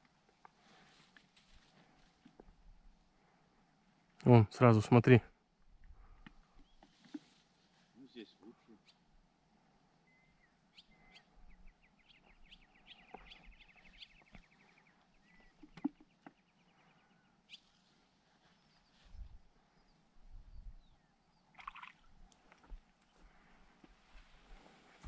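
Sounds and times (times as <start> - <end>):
songbird trilling and chirping: 10.0 - 17.7.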